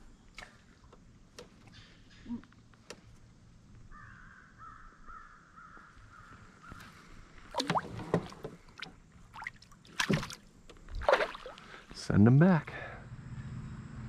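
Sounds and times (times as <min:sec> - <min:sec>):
knocks and splashes around canoe: 0:06.8 - 0:11.9.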